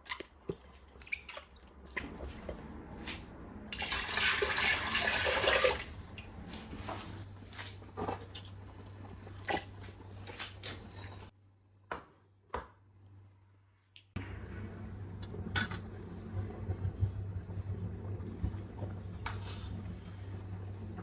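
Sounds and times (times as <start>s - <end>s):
low steady hum: 12.9s - 21.0s.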